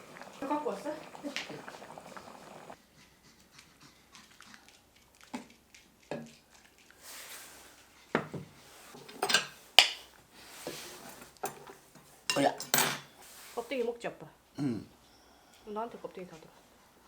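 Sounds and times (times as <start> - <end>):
dishes and utensils clinking: 8.2 - 13.2.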